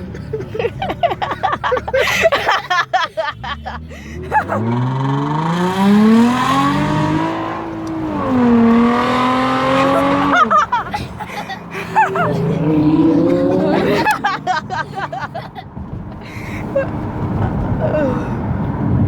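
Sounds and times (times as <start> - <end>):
car engine revving: 0.0 - 19.0
voices: 9.6 - 15.5.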